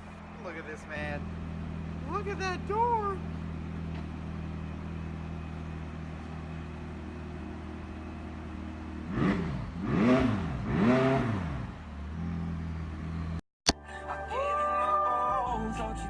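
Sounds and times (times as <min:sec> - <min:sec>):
sports car engine idling and revving: 0:00.0 - 0:13.4.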